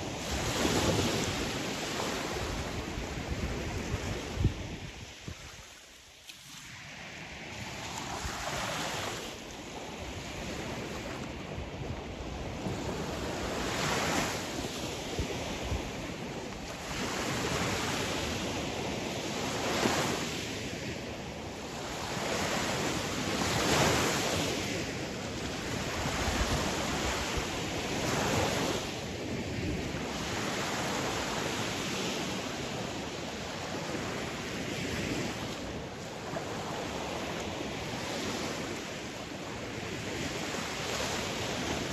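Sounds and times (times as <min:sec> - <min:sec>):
sea waves breaking on shore: 0:00.0 - 0:41.9.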